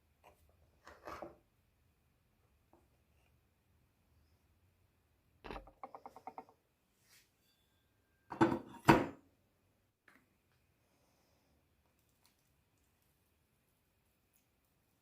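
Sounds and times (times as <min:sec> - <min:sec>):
hard objects knocking: 0:05.5 - 0:06.6.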